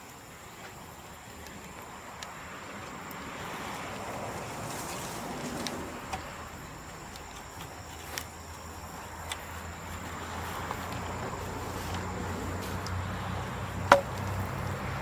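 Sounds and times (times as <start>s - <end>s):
bonfire hissing: 0.0s - 15.0s
bamboo popping and crackling: 4.4s - 15.0s.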